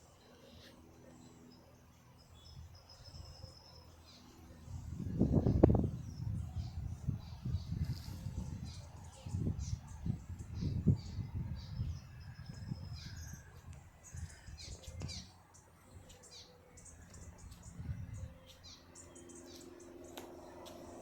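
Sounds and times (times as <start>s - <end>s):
faint steady hum: 0.0s - 21.0s
small birds chirping: 0.0s - 21.0s.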